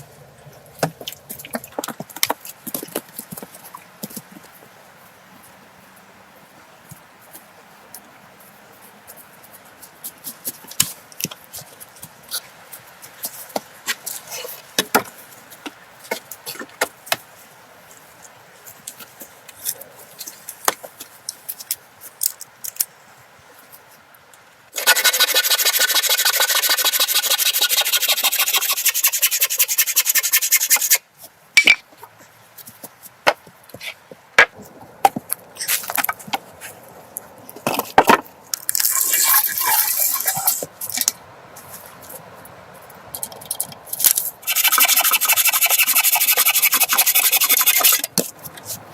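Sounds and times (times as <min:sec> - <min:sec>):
rasping scrape on wood: 0:24.8 - 0:31.0, 0:44.5 - 0:48.0.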